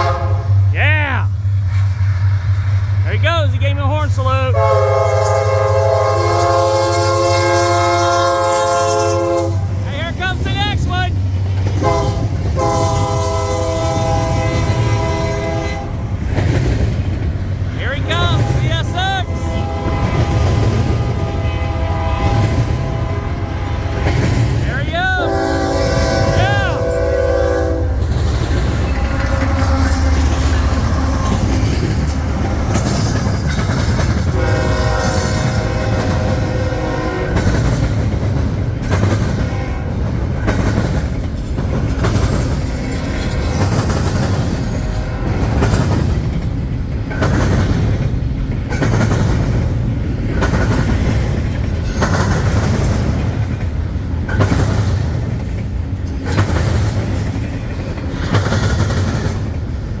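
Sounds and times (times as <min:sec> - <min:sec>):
locomotive air horn: 0:00.0 - 0:00.6, 0:04.5 - 0:09.7, 0:11.8 - 0:16.0, 0:18.1 - 0:24.4, 0:25.0 - 0:28.0, 0:28.9 - 0:31.5, 0:34.3 - 0:37.5
freight train rumble: 0:00.0 - 1:00.0
wheels clacking over rail joints: 0:09.4 - 0:18.6, 0:19.3 - 0:36.6, 0:37.2 - 1:00.0.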